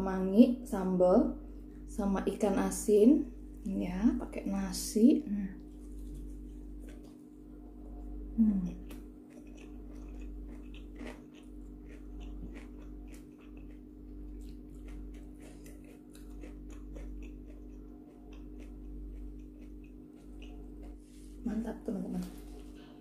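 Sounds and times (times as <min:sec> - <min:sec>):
low hum: 0:00.0 - 0:23.0
chewing food: 0:05.6 - 0:07.5, 0:08.7 - 0:21.4.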